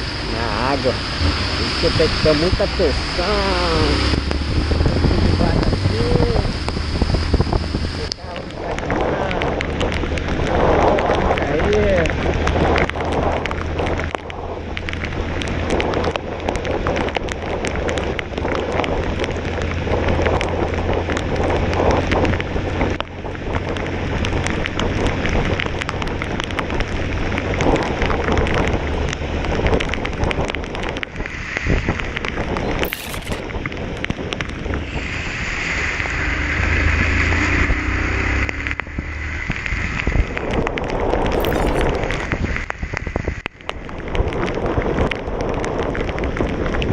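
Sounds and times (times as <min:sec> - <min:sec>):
motorcycle engine drone: 0:00.0 - 0:22.7
wind and rain buffeting microphone: 0:00.0 - 0:46.9.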